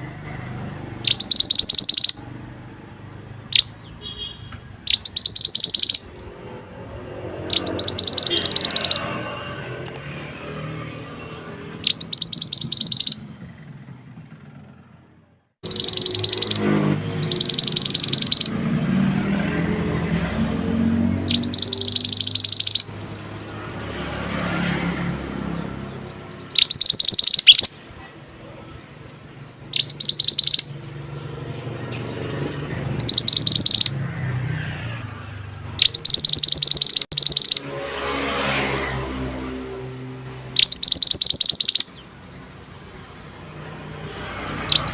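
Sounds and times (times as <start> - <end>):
bird high-pitched trill: 1.0 - 2.3, 3.5 - 3.8, 4.9 - 6.4, 7.4 - 9.3, 11.2 - 13.4, 15.6 - 18.6, 21.2 - 24.0, 26.0 - 27.8, 29.6 - 30.8, 32.9 - 34.1, 35.8 - 37.7, 40.5 - 42.8, 44.6 - 44.9.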